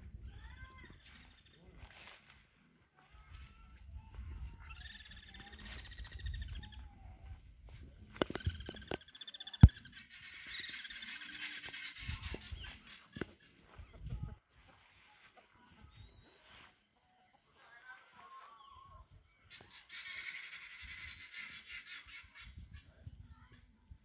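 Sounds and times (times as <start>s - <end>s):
birds trilling: 0.0s - 2.1s, 4.1s - 14.4s, 17.6s - 23.1s
wind rumble on microphone: 13.9s - 14.4s.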